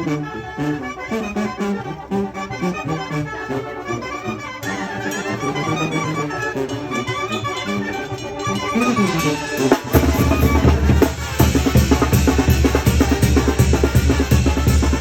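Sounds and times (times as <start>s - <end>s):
accordion melody: 0.0s - 15.0s
band playing: 0.0s - 15.0s
drums driving beat: 9.0s - 15.0s.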